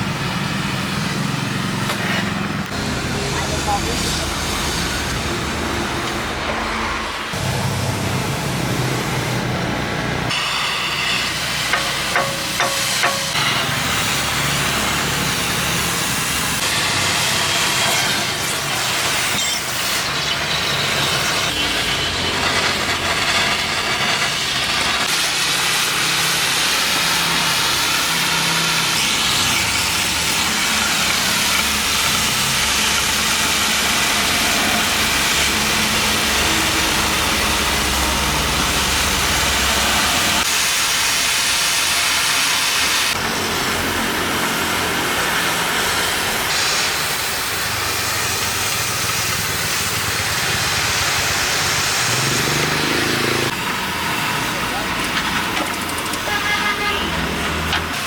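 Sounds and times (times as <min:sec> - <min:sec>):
loud mechanical noise with hiss: 0:00.0 - 0:58.0.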